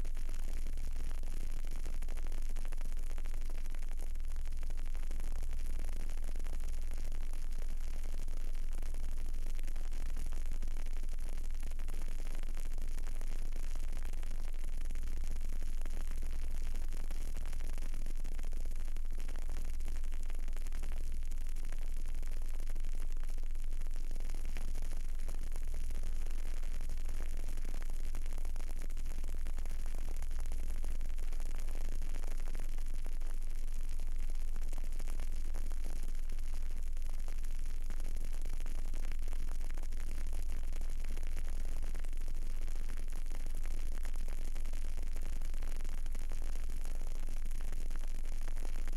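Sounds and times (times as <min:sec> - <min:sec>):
candle hiss and hum: 0:00.0 - 0:48.9.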